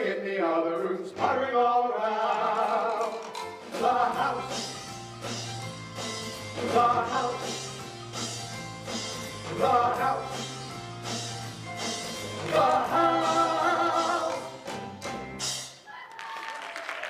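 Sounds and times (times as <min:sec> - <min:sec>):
men singing: 0:00.0 - 0:04.8, 0:06.6 - 0:07.7, 0:09.4 - 0:10.6, 0:12.3 - 0:14.6
live musical accompaniment: 0:01.1 - 0:15.9
audience applause: 0:15.9 - 0:17.0.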